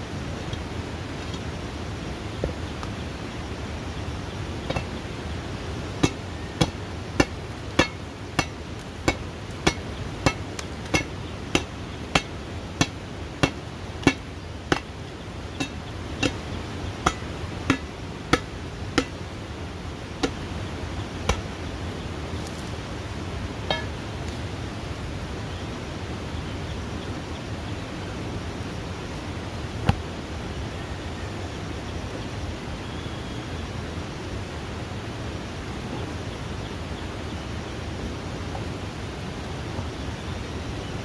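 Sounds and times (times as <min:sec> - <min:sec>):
steady background noise: 0:00.0 - 0:41.0.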